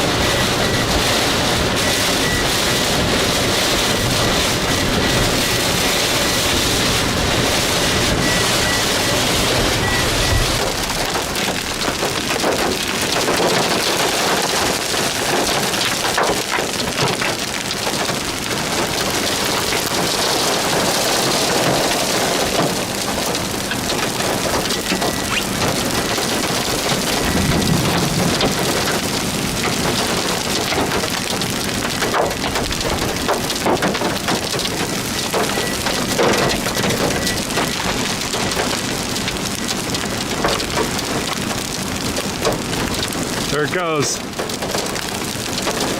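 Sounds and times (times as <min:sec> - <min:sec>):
heavy rain pattering: 0:00.0 - 0:45.9
low rumble: 0:04.0 - 0:12.8.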